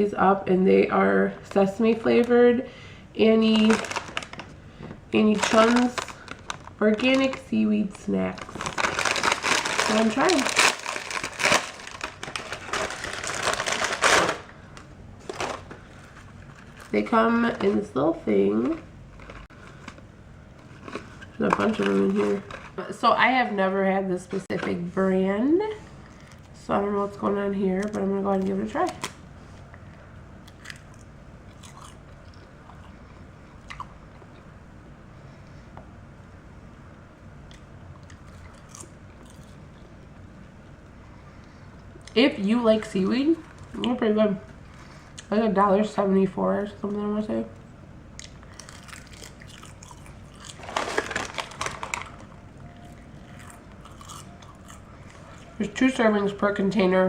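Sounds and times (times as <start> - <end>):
chewing crisp snack crunches: 30.4 - 33.0, 37.5 - 39.9, 48.2 - 55.4.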